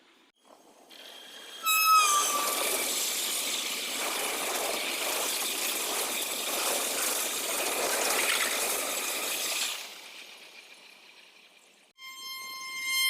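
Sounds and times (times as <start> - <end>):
train rushing past: 0.4 - 11.9
train horn: 1.6 - 2.6.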